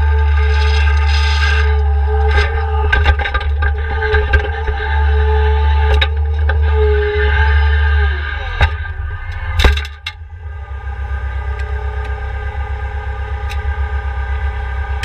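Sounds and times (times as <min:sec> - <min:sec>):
diesel engine idling: 0:00.0 - 0:15.0
sharp clunks: 0:08.6 - 0:10.4.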